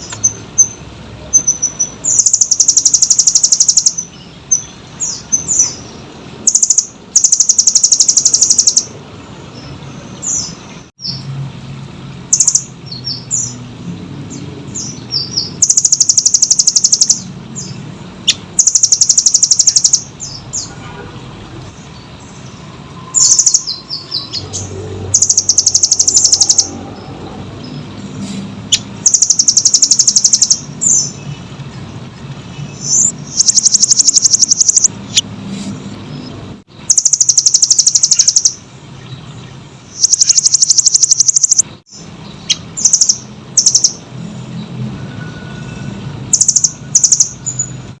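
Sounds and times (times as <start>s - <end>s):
bird trilling: 0.0s - 9.0s, 12.3s - 13.6s, 14.8s - 20.7s, 23.1s - 27.1s, 28.7s - 31.2s, 32.8s - 35.2s, 36.9s - 38.6s, 39.9s - 44.0s, 46.3s - 47.7s.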